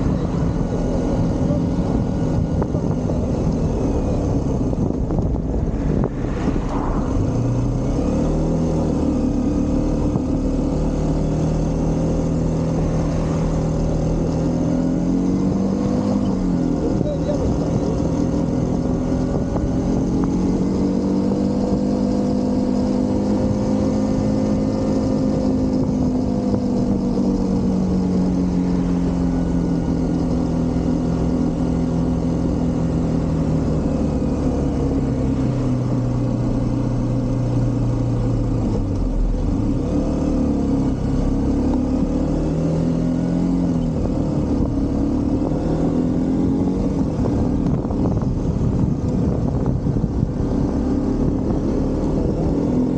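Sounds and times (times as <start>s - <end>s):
motorcycle engine: 0.0s - 52.9s
wind rush: 2.0s - 9.1s, 46.7s - 52.6s.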